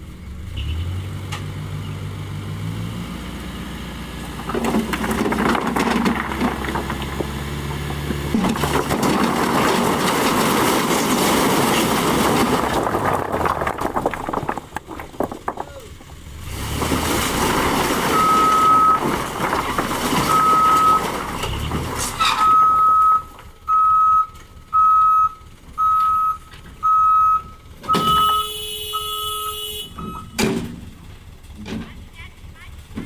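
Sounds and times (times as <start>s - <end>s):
truck engine running: 0.0s - 33.0s
reversing alarm beeps: 22.4s - 30.4s.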